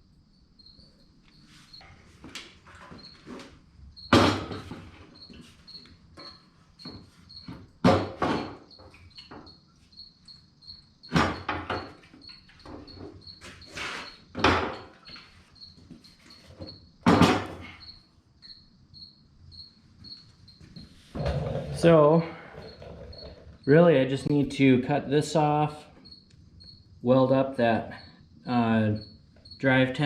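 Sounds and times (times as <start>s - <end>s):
cricket chirping: 0.0s - 30.0s.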